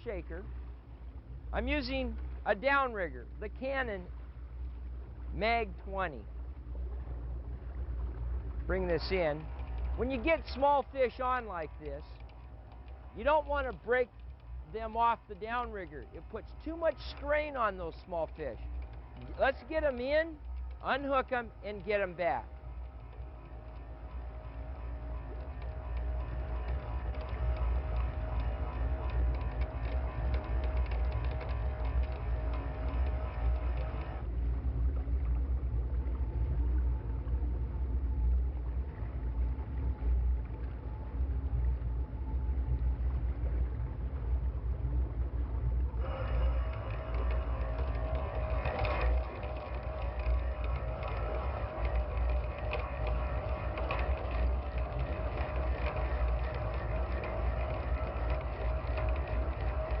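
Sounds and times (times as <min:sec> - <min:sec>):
boat engine rumble: 0:00.0 - 1:00.0
motor whine: 0:00.0 - 1:00.0
ratcheting clicks: 0:11.7 - 0:34.2, 0:46.0 - 1:00.0
electric motor whining: 0:46.0 - 1:00.0.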